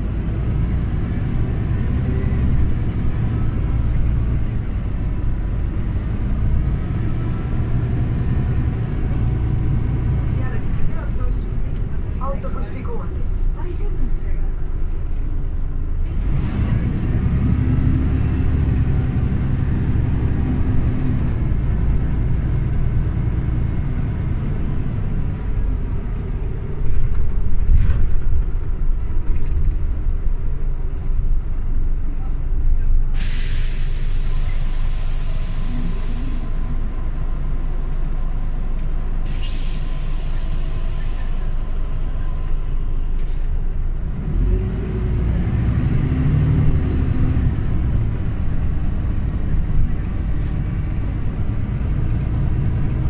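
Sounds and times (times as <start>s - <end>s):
bus engine humming: 0.0s - 53.0s
compressed air hisses: 33.2s - 36.6s, 39.3s - 40.9s.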